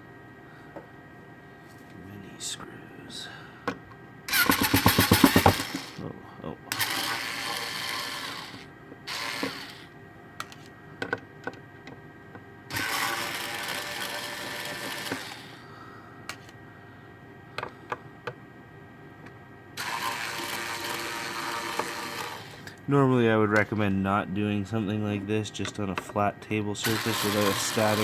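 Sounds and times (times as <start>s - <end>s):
electric screwdriver running: 4.3s - 6.0s, 6.7s - 9.9s, 12.7s - 15.6s, 19.8s - 22.7s, 26.8s - 28.0s.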